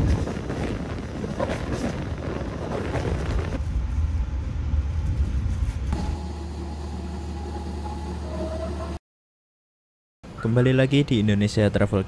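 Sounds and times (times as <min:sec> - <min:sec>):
train rattling and rumbling: 0:00.0 - 0:09.0
diesel locomotive idling: 0:06.0 - 0:09.0.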